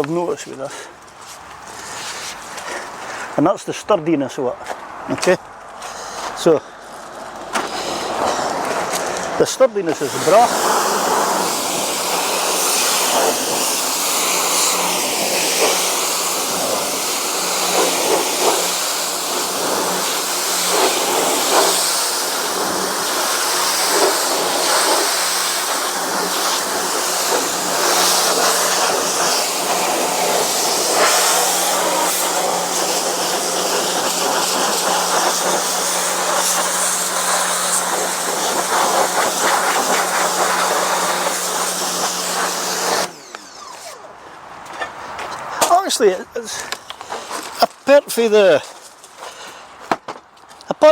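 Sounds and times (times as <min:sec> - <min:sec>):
water jet hissing: 0:07.6 - 0:44.0
pressure washer motor humming: 0:07.6 - 0:44.1.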